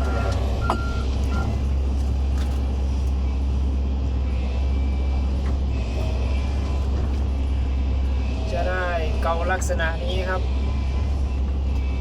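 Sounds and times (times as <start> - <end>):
excavator diesel engine droning: 0.0 - 12.0.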